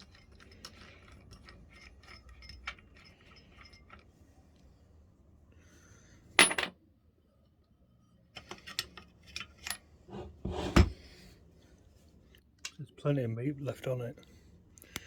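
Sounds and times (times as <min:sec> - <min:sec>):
small metal parts clinking: 0:00.0 - 0:04.1.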